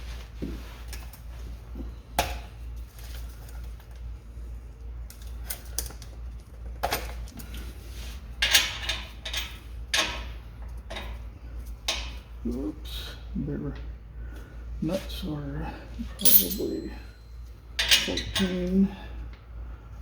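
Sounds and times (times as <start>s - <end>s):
low steady hum: 0.0s - 20.0s
metal tools clinking: 16.1s - 17.2s.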